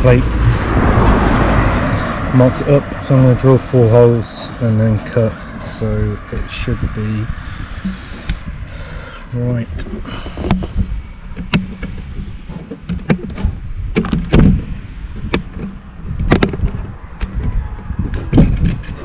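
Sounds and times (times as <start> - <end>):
low rumbling: 0.0 - 19.0
knocks and thumps: 9.8 - 19.0.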